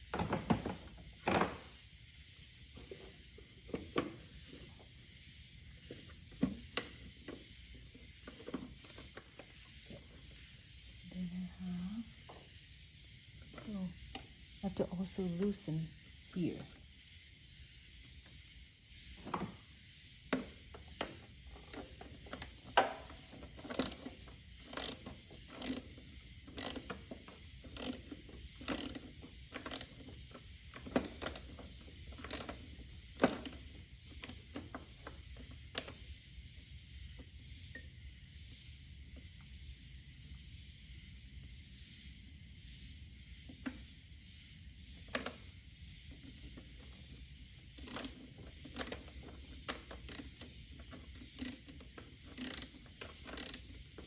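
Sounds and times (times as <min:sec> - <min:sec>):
ratchet wrench clicking: 0:23.6 - 0:30.1, 0:30.9 - 0:32.6, 0:33.2 - 0:34.4, 0:47.8 - 0:53.9.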